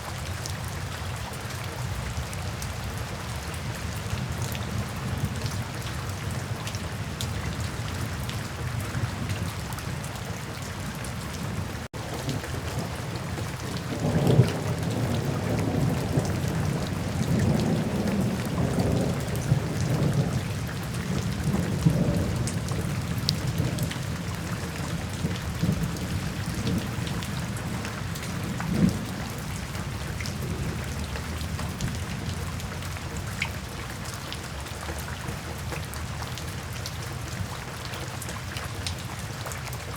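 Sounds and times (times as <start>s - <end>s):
steady rain falling: 0.0s - 39.9s
thunder rumbling: 10.8s - 33.0s.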